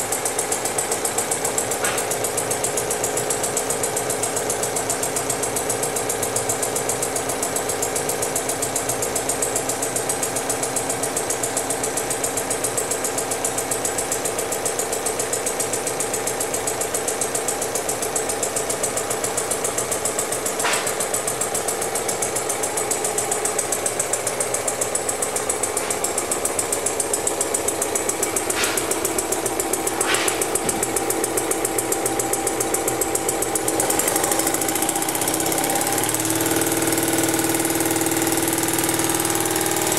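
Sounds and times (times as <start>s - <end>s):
model engine clattering: 0.0s - 39.9s
sharp ticks: 15.6s - 39.9s.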